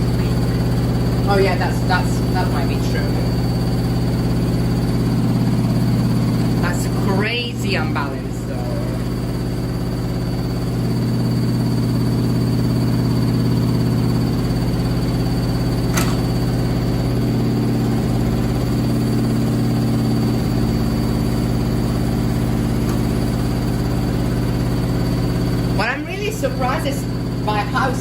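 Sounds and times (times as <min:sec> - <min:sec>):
washing machine spinning: 0:00.0 - 0:28.0.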